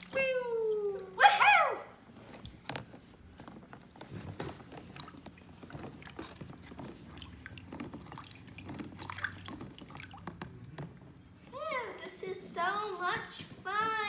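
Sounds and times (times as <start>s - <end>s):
water dripping and splashing: 0.0s - 1.3s, 4.1s - 12.2s.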